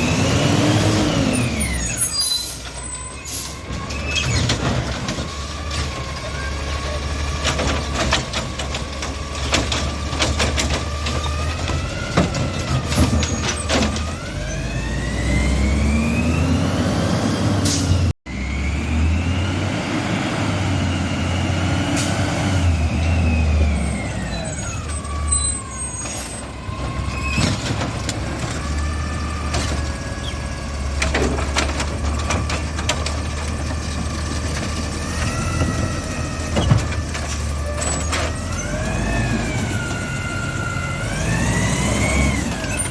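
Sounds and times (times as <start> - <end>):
garbage truck engine revving: 0.0 - 42.9
metal clanks and knocks: 3.8 - 14.1, 30.9 - 38.5.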